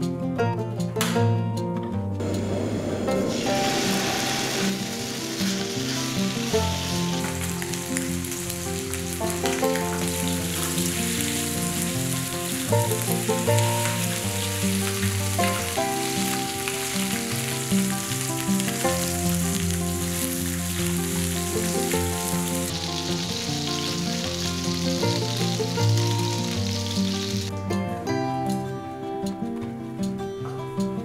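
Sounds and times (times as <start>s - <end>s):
background music with melody: 0.0s - 31.0s
chicken sizzling in a frying pan: 2.2s - 27.5s.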